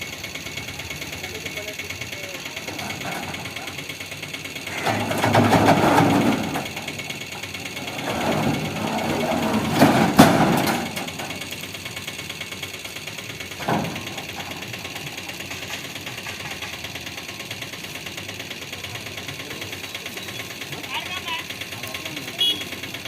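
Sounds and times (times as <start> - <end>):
machine running with fast ticking: 0.0 - 5.2, 10.8 - 23.0.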